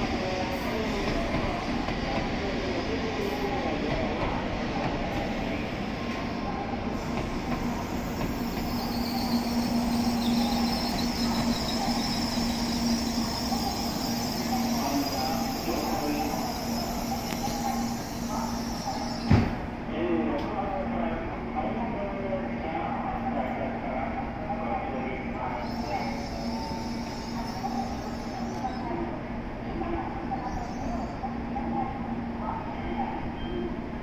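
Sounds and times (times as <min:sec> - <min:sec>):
train rolling slowly: 0:00.0 - 0:19.9, 0:25.4 - 0:34.0
steady high squeal: 0:07.9 - 0:19.3, 0:25.4 - 0:28.9
sudden thump: 0:19.3 - 0:19.6.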